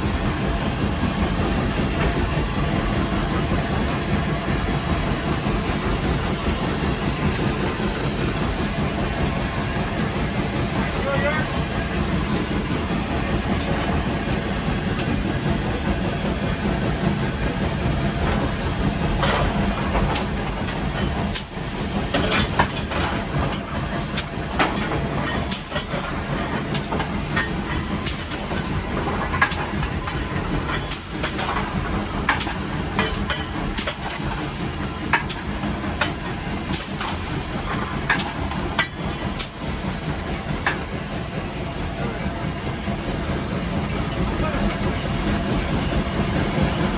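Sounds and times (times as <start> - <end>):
hissing steam: 0.0 - 46.9
steam locomotive rumble: 0.0 - 46.9
sharp clicks and knocks: 29.2 - 39.6.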